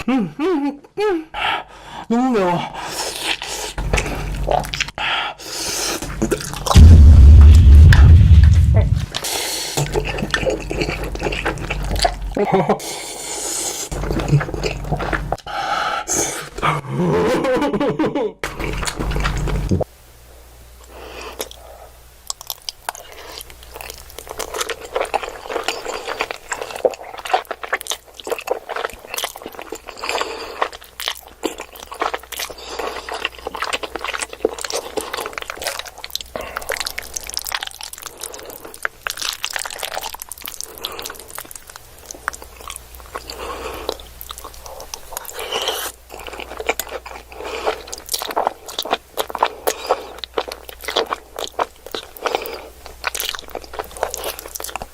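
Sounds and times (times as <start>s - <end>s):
person chewing crunchy food: 2.9s - 15.5s, 18.5s - 19.9s, 22.3s - 54.9s.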